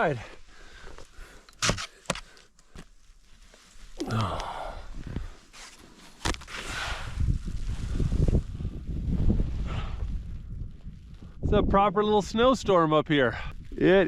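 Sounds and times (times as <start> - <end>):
heavy breath and low grunt: 4.0 - 5.4
wind buffeting microphone: 6.7 - 14.0.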